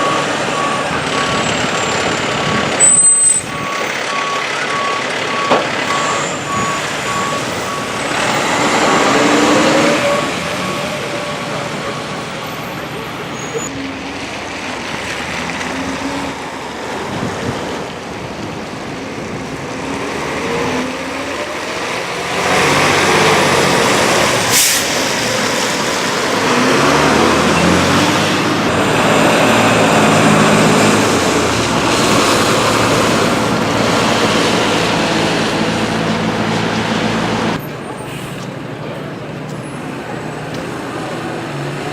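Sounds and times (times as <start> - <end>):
reversing beeper: 0.0 - 13.9
diesel engine revving: 0.0 - 41.9.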